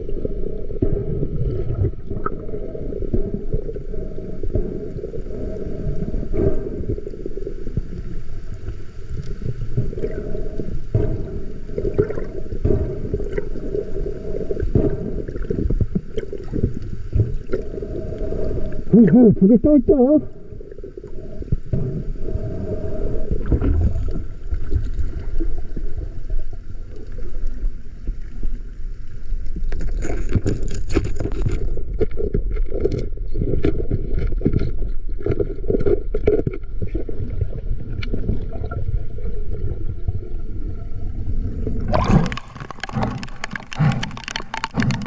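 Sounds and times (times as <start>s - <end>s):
sea waves sloshing: 36.8s - 45.0s.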